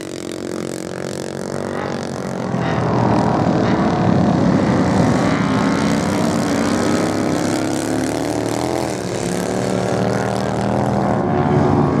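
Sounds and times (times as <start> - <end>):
racing motorcycle engines: 0.0 - 12.0.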